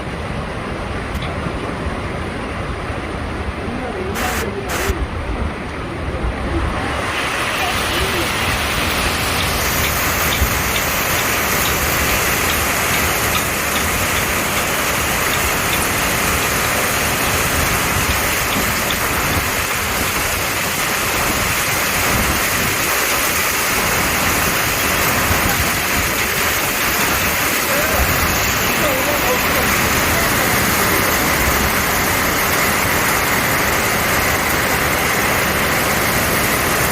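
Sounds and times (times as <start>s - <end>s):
heavy rain: 0.0s - 36.9s.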